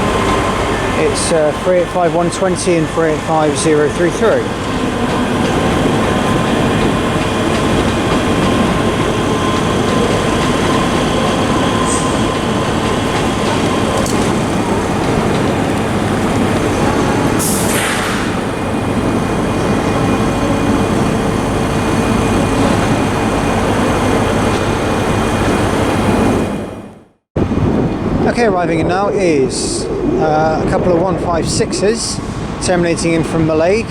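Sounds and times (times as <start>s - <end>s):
train rail rumble: 0.0s - 33.9s.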